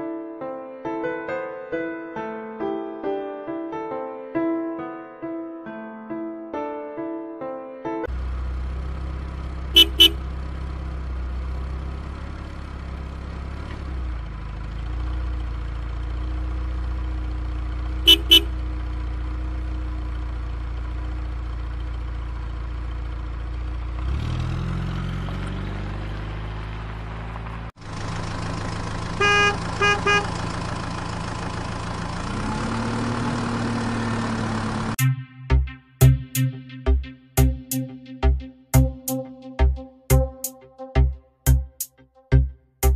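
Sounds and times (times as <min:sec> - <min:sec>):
car engine hum: 0:08.1 - 0:35.0
engine drone: 0:08.1 - 0:35.0
car horn honks: 0:09.7 - 0:10.2, 0:18.0 - 0:18.6, 0:29.1 - 0:30.4.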